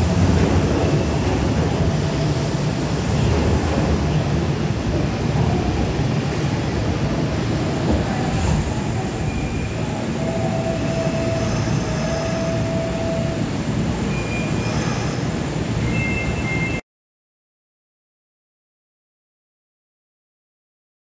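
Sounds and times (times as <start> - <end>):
electric train rumbling: 0.0 - 16.8
thin drawn-out squeal: 14.1 - 16.8.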